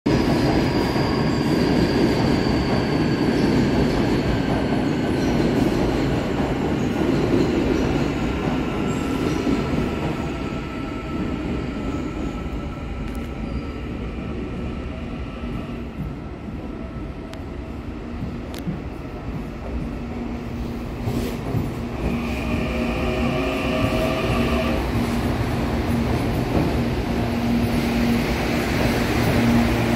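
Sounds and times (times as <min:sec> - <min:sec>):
electric train rumbling past: 0:00.1 - 0:29.9
second train approaching: 0:00.1 - 0:29.9.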